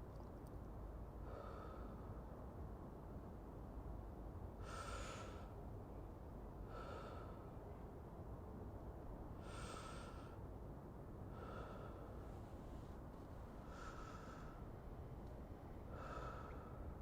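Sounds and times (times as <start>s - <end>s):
low background rumble: 0.0s - 17.0s
person breathing slowly: 9.4s - 10.5s, 11.3s - 14.8s, 15.8s - 17.0s.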